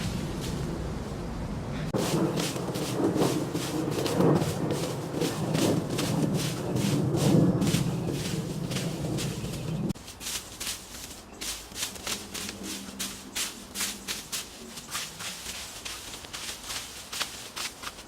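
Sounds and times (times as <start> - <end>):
footsteps through dry leaves: 0.0 - 1.2, 1.9 - 18.0
low hum: 0.0 - 10.0.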